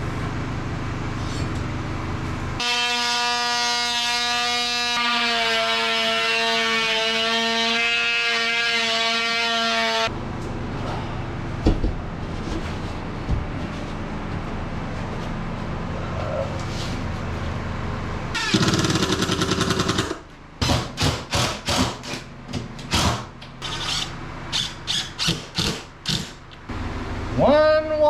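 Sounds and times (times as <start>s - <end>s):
impact driver rattling: 18.4s - 20.2s.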